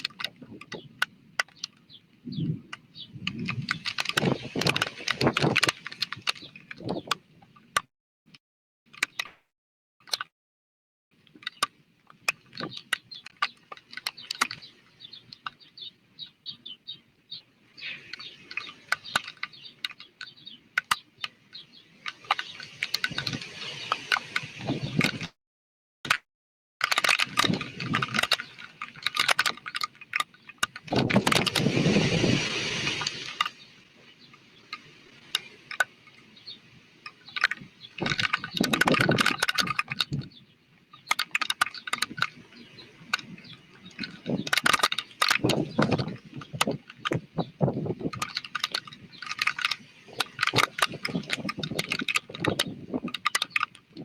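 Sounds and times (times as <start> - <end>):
wind gusting: 2.2 - 7.1, 17.7 - 25.3, 27.3 - 28.8, 30.7 - 40.3, 42.1 - 53.3
crackling rattling rain and debris: 27.0 - 40.2.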